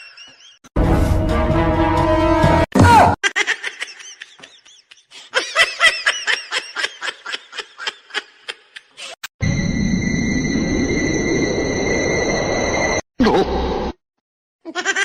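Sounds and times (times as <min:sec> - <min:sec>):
high-pitched giggling laughter: 0:03.2 - 0:09.2, 0:14.7 - 0:15.0.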